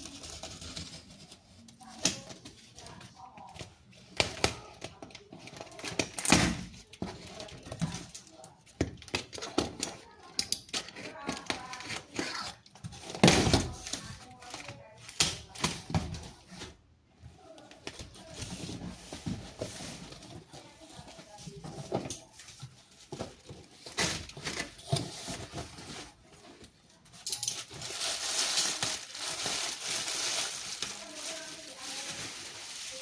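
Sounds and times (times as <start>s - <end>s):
packaging rustling and tearing: 22.2s - 33.0s.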